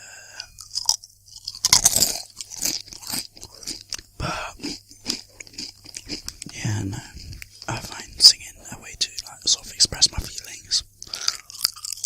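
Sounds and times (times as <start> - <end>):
crisps being crunched: 0.6 - 6.7, 11.0 - 12.0.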